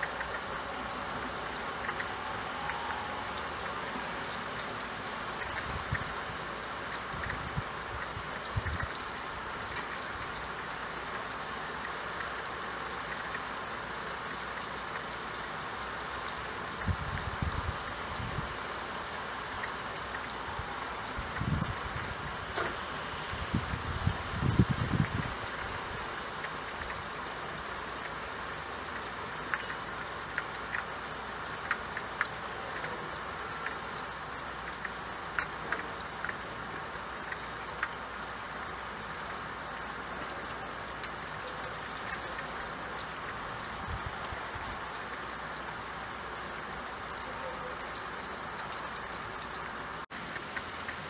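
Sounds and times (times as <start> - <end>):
rain falling: 0.0 - 51.0
faint dripping: 24.3 - 51.0.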